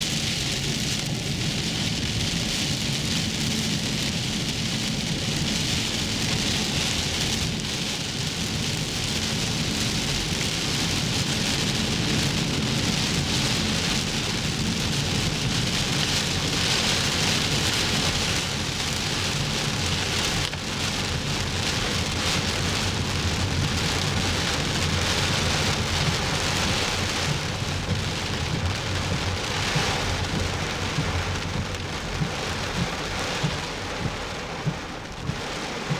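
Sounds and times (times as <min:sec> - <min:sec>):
heavy rain falling: 0:00.0 - 0:35.9
low rumble: 0:20.6 - 0:35.9.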